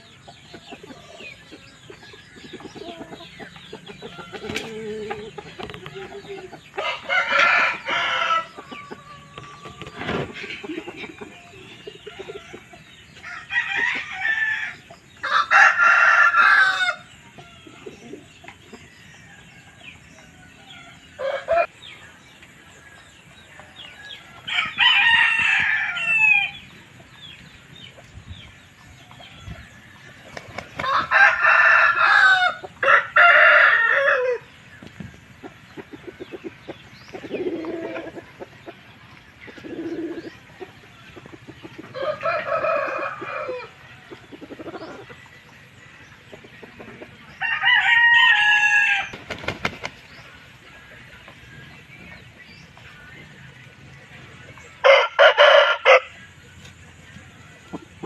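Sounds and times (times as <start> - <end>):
chicken clucking: 0.0 - 14.2, 14.8 - 58.0
roosters crowing: 2.7 - 21.8, 23.6 - 26.8, 30.6 - 34.6, 41.8 - 45.1, 47.3 - 49.8, 54.8 - 56.2.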